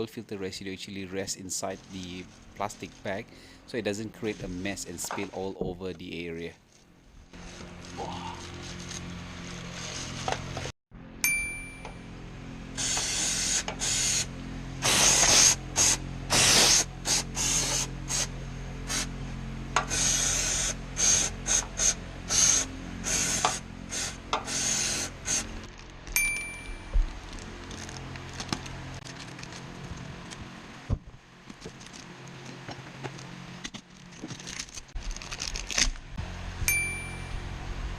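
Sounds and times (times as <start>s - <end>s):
plastic bag crinkling: 25.6s - 26.2s, 27.0s - 30.0s, 33.9s - 36.0s.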